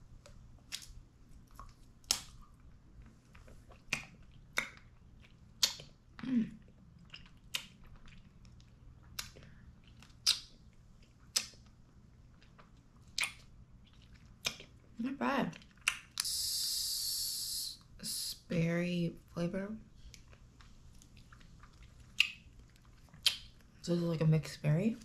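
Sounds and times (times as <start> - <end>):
person chewing wet smacks: 0.2 - 16.3, 20.0 - 23.8.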